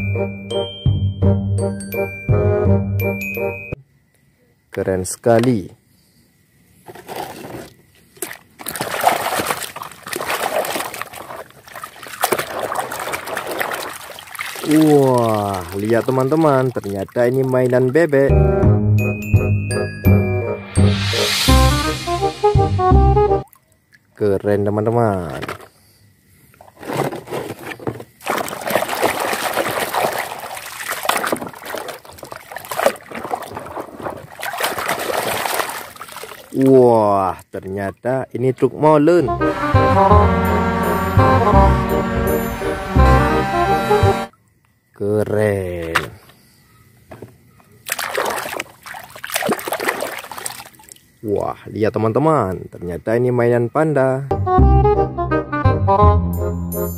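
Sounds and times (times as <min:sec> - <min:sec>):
wet handling sounds: 0:06.8 - 0:18.2, 0:26.5 - 0:36.7, 0:47.1 - 0:51.1
hand sloshing through water: 0:06.9 - 0:18.0, 0:28.0 - 0:36.6, 0:47.8 - 0:51.1.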